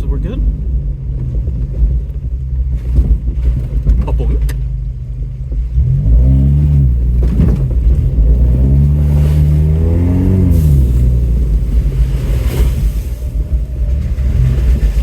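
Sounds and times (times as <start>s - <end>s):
steady low rumble: 0.0s - 15.0s
truck engine revving: 5.7s - 15.0s.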